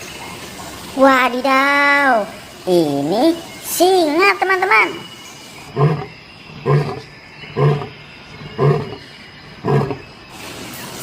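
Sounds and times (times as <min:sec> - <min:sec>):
lion roaring: 0:05.7 - 0:10.0.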